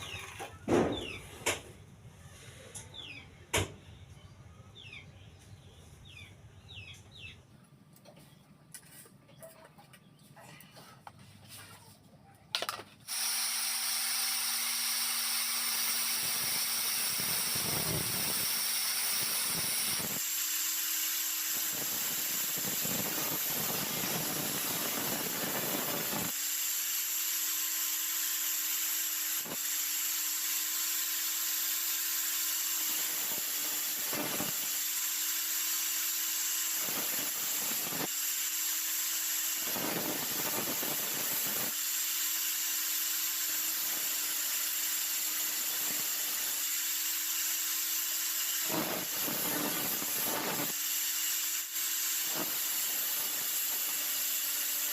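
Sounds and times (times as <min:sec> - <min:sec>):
electric power tool whining: 0:13.1 - 0:54.9.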